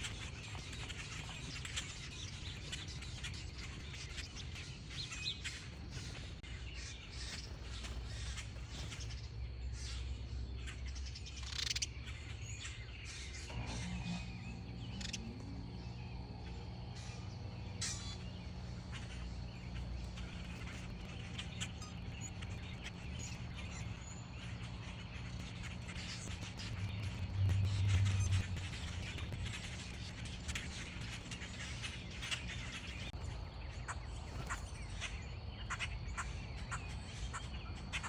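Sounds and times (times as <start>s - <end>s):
birds chirping: 0.0s - 38.0s
low steady hum: 0.0s - 38.0s.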